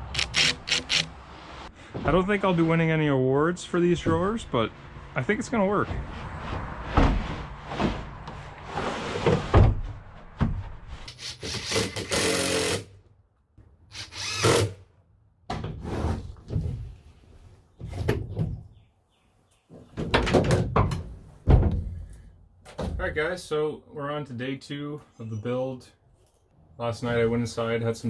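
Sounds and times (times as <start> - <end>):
knocks and clatter of wood: 6.0 - 10.7, 17.8 - 18.8, 19.7 - 23.1
power drill running: 13.9 - 14.7.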